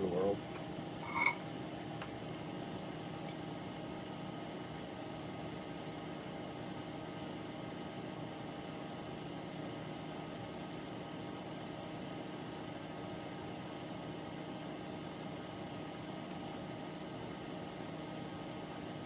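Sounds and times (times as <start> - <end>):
electric fan whirring: 6.7 - 14.5.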